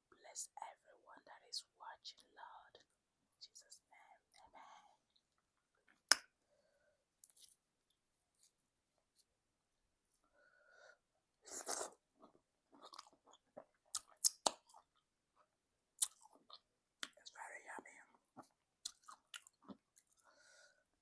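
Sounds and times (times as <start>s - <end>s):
quiet chewing: 11.4s - 17.2s, 17.8s - 20.3s
wet mouth clicks: 13.9s - 14.8s, 16.0s - 17.2s, 18.8s - 20.2s.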